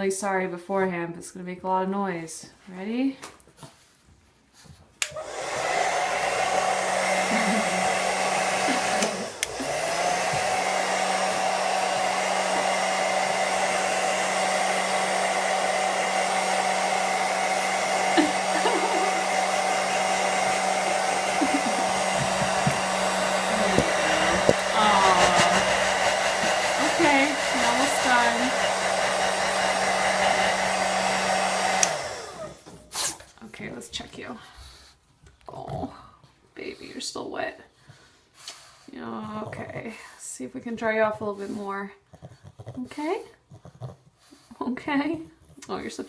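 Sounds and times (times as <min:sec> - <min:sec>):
blow dryer running with high whine: 0:05.0 - 0:32.8.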